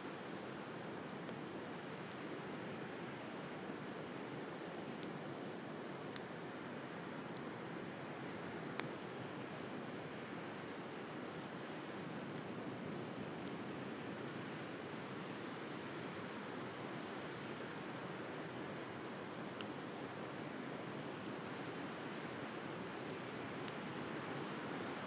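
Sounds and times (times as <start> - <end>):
bonfire crackling: 0.4 - 10.3, 16.0 - 25.0.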